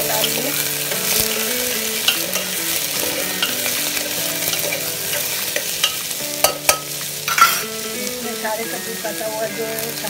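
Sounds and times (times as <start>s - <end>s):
vegetables sizzling in hot oil: 0.0s - 10.0s
spoon clicking against pot: 4.5s - 7.7s.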